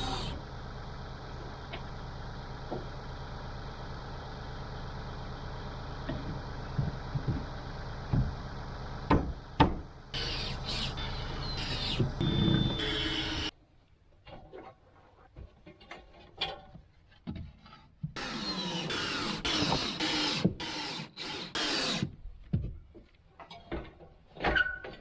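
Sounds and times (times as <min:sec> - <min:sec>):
small engine running: 0:00.0 - 0:13.5, 0:18.2 - 0:22.1.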